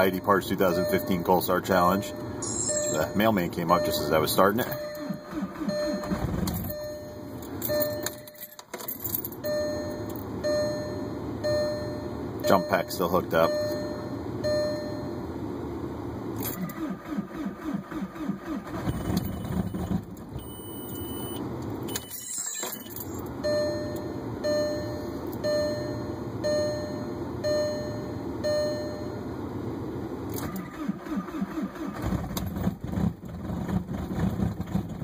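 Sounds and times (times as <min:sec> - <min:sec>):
warning chime beeps: 0:00.0 - 0:08.5, 0:09.4 - 0:15.3, 0:20.4 - 0:29.2
diesel engine cranking and running: 0:00.0 - 0:15.2, 0:16.2 - 0:29.2, 0:30.2 - 0:35.0.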